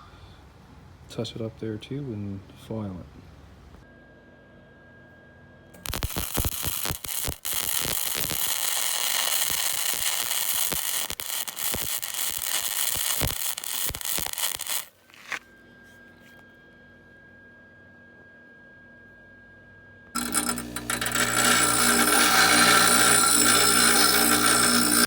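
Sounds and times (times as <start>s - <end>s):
welding arc crackling and spitting: 5.8s - 15.0s, 20.2s - 25.0s.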